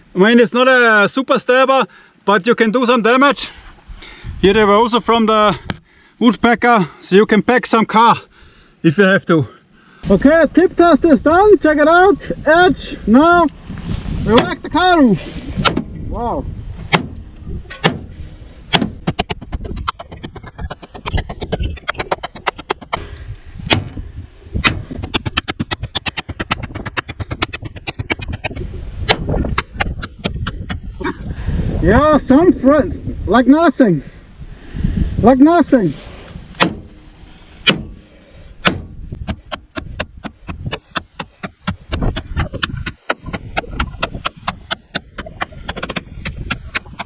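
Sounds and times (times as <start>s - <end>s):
knife striking sheet metal: 16.9s - 18.1s.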